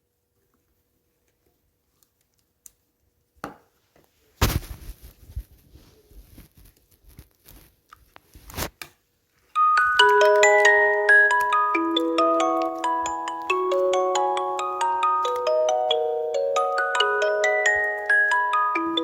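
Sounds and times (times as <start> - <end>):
rustling and tearing handling noises: 4.4 - 9.5.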